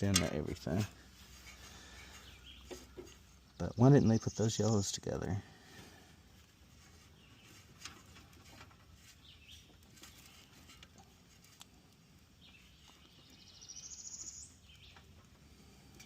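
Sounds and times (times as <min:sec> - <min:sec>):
faint bird chirps: 0:12.4 - 0:15.1.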